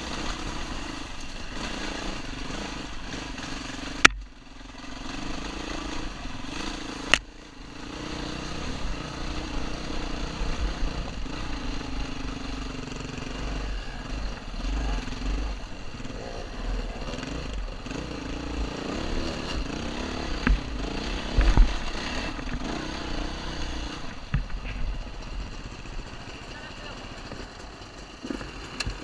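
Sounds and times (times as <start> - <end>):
dirt bike engine: 0.0 - 29.0
sharp knocks: 4.0 - 4.3.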